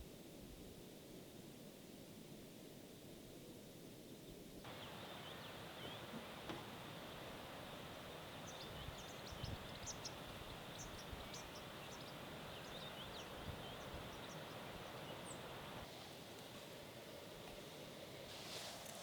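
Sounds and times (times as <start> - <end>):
rain hiss: 4.6 - 19.0.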